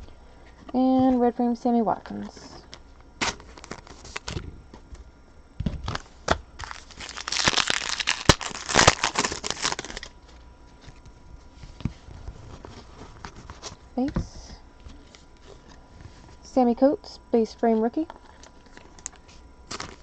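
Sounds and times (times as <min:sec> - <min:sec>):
foil wrapper crinkling: 0:03.2 - 0:04.4, 0:05.8 - 0:11.0, 0:18.3 - 0:20.0.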